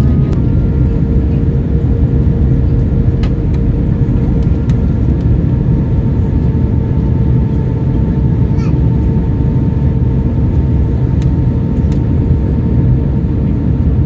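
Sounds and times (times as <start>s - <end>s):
airplane cabin rush: 0.0s - 14.0s.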